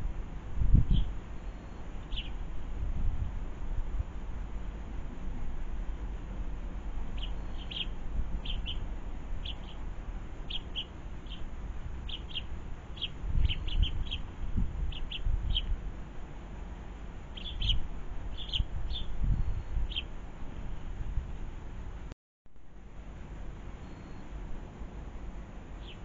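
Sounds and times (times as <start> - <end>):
small birds chirping: 0.7 - 2.5, 7.0 - 15.8, 17.2 - 20.2, 25.7 - 26.0.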